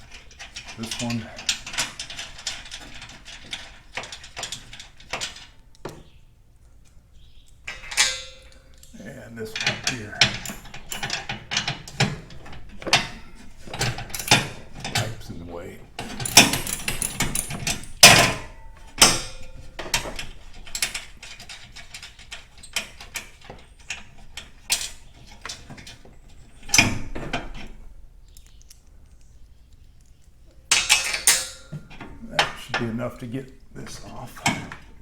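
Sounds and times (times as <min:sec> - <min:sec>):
metal tools knocking on steel: 0:09.6 - 0:15.2, 0:15.9 - 0:20.9.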